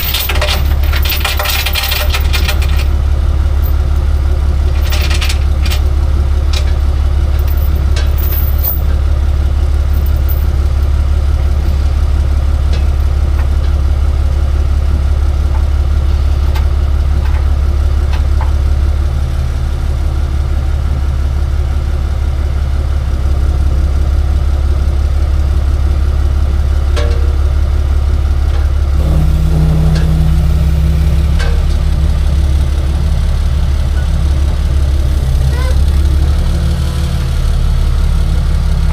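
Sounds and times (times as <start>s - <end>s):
truck engine idling: 0.0s - 38.9s
higher hum: 28.5s - 36.8s.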